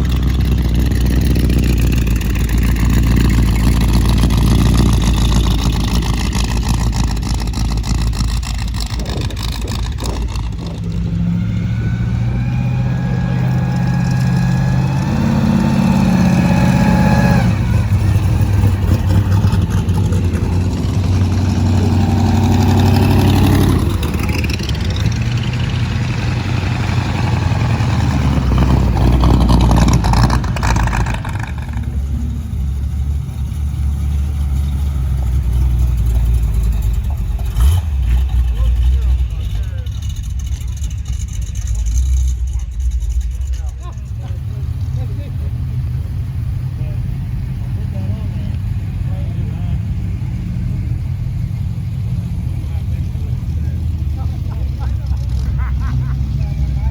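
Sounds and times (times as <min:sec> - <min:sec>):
car engines revving: 0:00.0 - 0:56.9.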